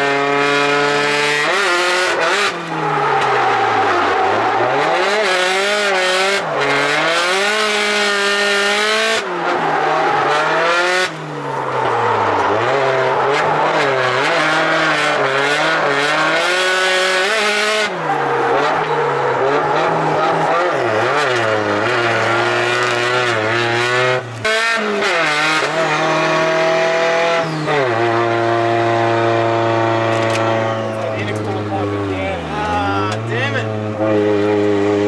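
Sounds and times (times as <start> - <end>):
car engine revving hard: 0.0 - 35.0
tyre squeal: 1.3 - 23.0, 24.6 - 28.2.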